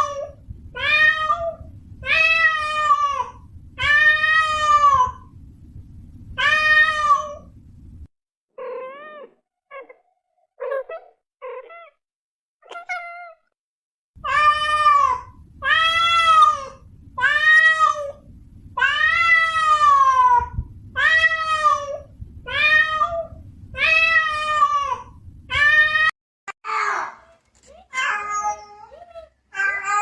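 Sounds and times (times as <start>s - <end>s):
low steady hum: 0.0s - 8.1s, 14.2s - 26.1s
cat meowing: 8.6s - 10.0s.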